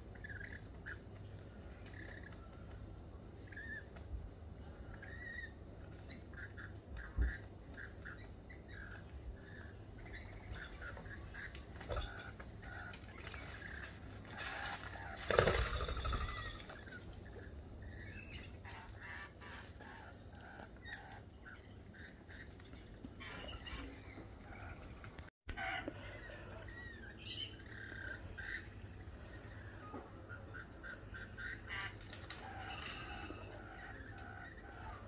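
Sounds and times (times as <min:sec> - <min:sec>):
birds chirping and calling: 0:00.0 - 0:35.0
bird wing flaps: 0:13.2 - 0:16.8.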